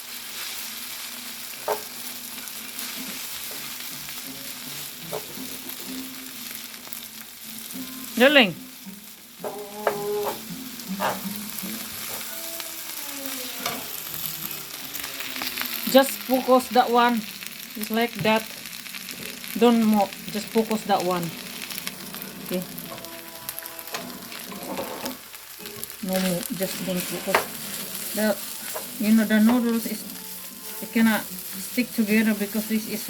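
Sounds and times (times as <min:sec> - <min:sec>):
noodles sizzling in a frying pan: 0:00.0 - 0:33.0.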